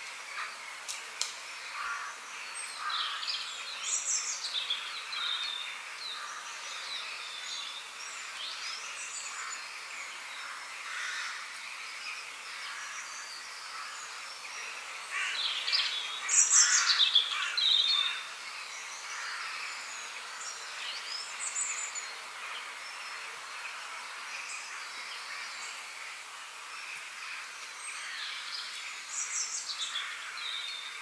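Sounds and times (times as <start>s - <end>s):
birds chirping and warbling: 0.0s - 31.0s
high outdoor hiss: 0.0s - 31.0s.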